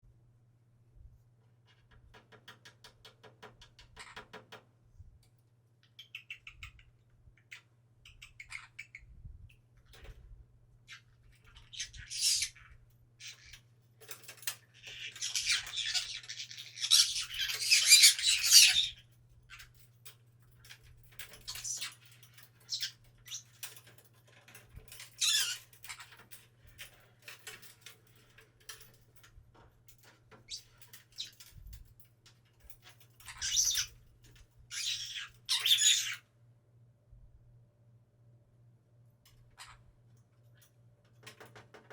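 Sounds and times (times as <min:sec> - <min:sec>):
light clicks and scratches: 0:01.2 - 0:36.1, 0:39.2 - 0:41.9
parrot screeching squawks: 0:10.9 - 0:13.6, 0:14.8 - 0:19.0, 0:25.2 - 0:26.0, 0:33.3 - 0:33.9, 0:34.7 - 0:36.2.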